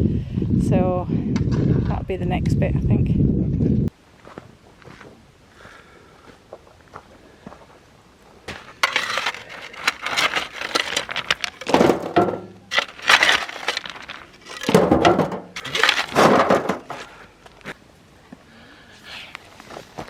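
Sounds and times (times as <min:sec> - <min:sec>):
crunching and rustling: 0:08.5 - 0:17.8.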